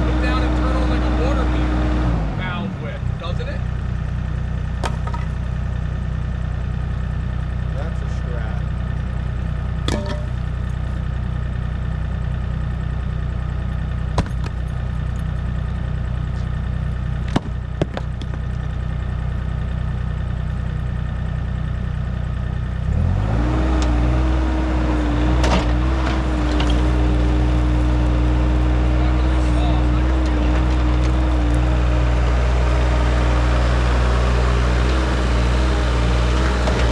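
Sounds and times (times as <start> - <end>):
diesel digger engine running: 0.0 - 36.9
sharp metallic clanks: 9.8 - 10.5.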